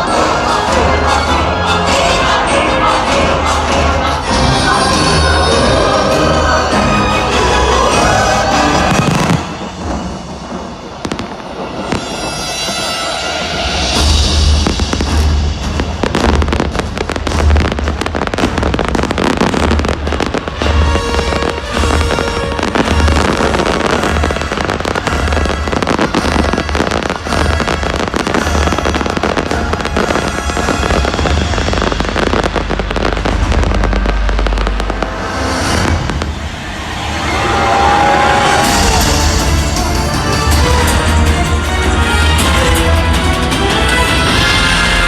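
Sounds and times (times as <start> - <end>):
fireworks bursting: 0.0 - 45.0
show music with bass beat: 38.6 - 45.0.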